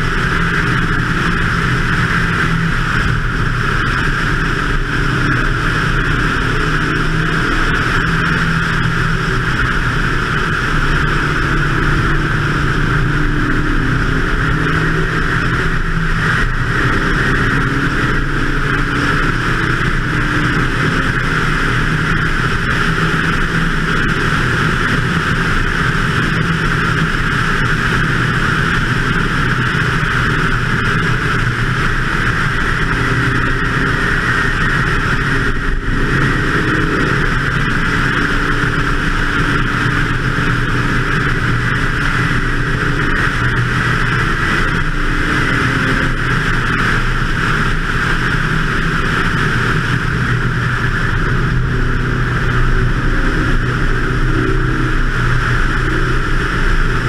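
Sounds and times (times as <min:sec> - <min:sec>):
race car engine running hard: 0:00.0 - 0:57.0
wind rushing on microphone: 0:00.0 - 0:57.0.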